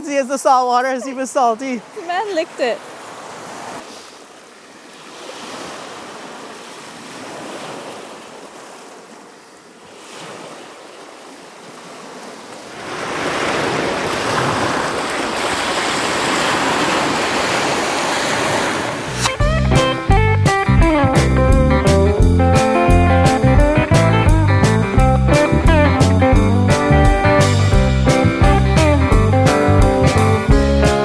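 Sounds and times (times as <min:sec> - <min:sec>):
ocean surf washing on beach: 0:00.0 - 0:19.4.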